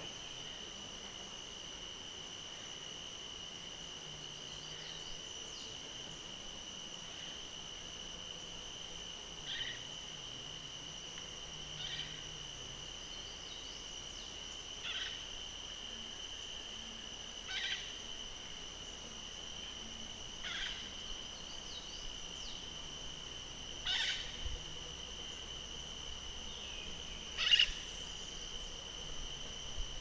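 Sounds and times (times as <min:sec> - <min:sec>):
insect trill: 0:00.0 - 0:30.0.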